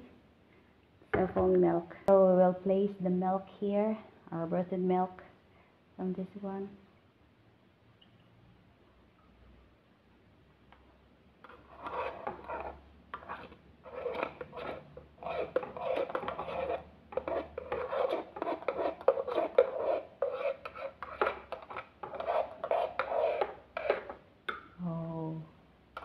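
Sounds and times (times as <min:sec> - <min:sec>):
utensil scraping and clinking jug: 0:11.4 - 0:24.2.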